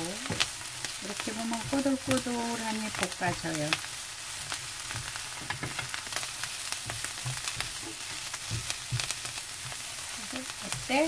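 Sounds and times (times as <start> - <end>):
food sizzling in oil: 0.0 - 11.0
spatula scraping and tapping pan: 0.2 - 11.0.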